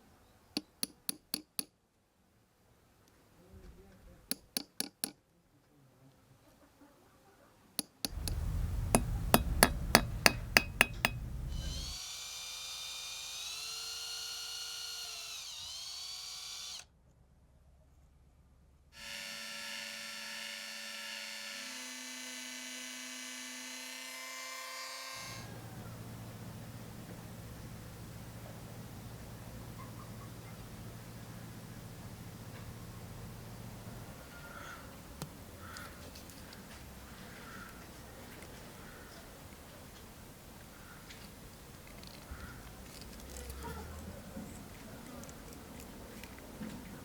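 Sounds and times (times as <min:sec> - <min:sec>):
sharp metallic clicks: 0:07.8 - 0:12.0
electric drill whining: 0:08.1 - 0:16.9, 0:19.0 - 0:25.6.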